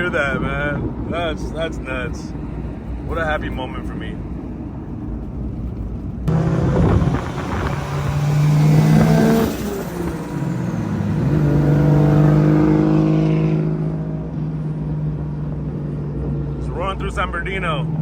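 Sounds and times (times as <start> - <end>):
car engine accelerating: 0.0 - 18.0
rising whine: 6.2 - 16.3.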